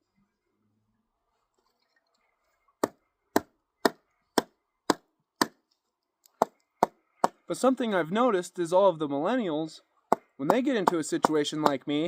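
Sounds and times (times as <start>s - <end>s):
axe chopping kindling: 2.8s - 5.6s, 6.4s - 7.4s, 10.1s - 11.8s.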